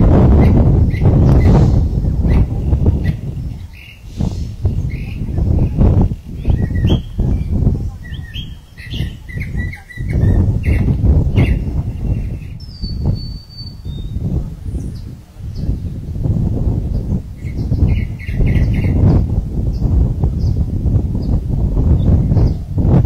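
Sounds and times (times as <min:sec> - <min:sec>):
low rumble: 0:00.0 - 0:18.1
birds chirping: 0:00.0 - 0:23.0.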